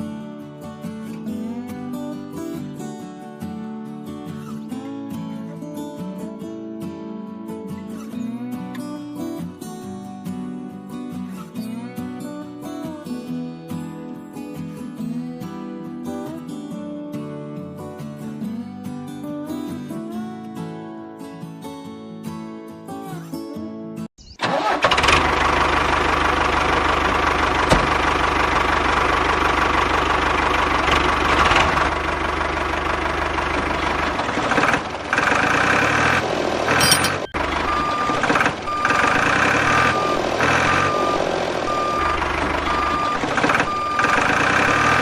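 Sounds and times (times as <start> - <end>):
vehicle engine running: 24.5 - 45.0
reversing alarm beeps: 36.8 - 45.0.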